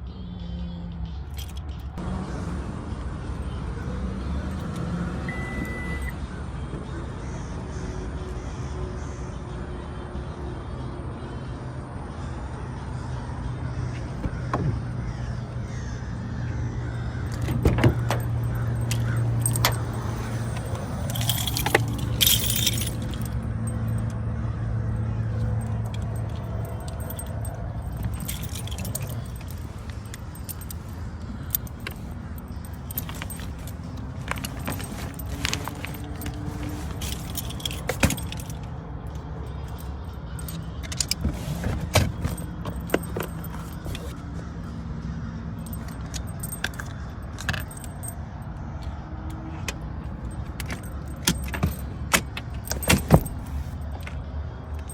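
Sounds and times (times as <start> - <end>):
keys jangling: 1.3 - 2.0, 17.0 - 44.6, 45.5 - 54.9
small objects clinking: 25.9 - 38.6.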